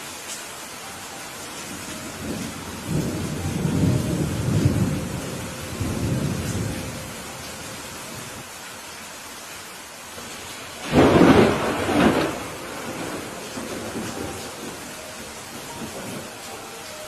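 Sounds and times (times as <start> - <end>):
steady rain falling: 0.0 - 17.0
thunder rumbling: 1.9 - 8.4, 10.2 - 16.6.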